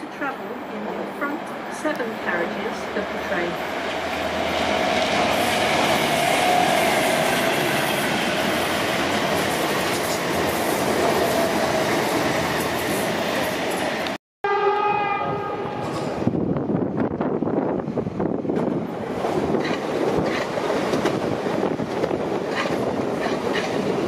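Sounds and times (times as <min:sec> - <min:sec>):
train wheel and rail rush: 0:00.0 - 0:24.0
train horn: 0:14.4 - 0:16.1.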